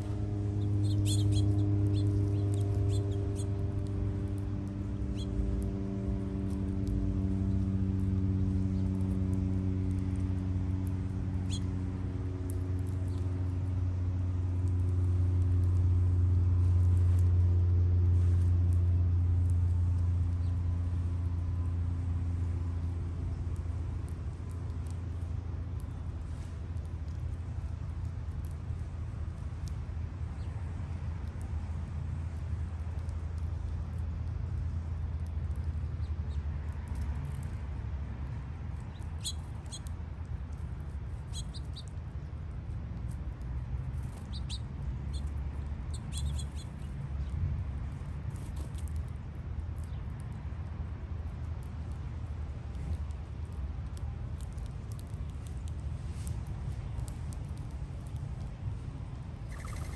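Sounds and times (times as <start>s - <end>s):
small birds chirping: 0.0s - 5.8s, 6.4s - 11.8s, 12.5s - 13.4s, 20.2s - 21.0s, 29.6s - 31.4s, 35.2s - 37.6s, 38.8s - 42.4s, 43.8s - 50.4s, 59.4s - 59.9s
low motor hum: 0.0s - 59.9s
steady low rumble: 0.0s - 59.9s.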